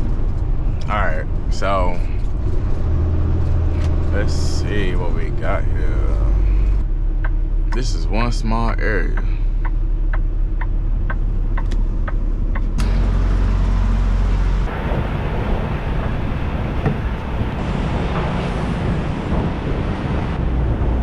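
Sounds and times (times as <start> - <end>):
light regular ticking: 0.0 - 12.9
road and wind noise: 0.0 - 21.0
truck engine rumble: 0.0 - 21.0.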